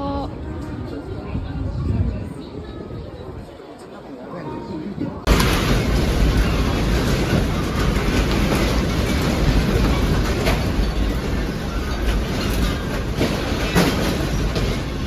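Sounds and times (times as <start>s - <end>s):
building rumbling and rattling: 5.1s - 15.0s.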